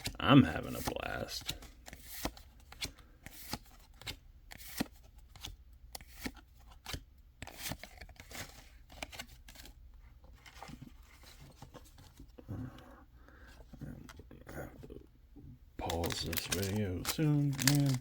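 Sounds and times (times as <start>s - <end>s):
foil wrappers and cards crackling: 15.8s - 18.0s.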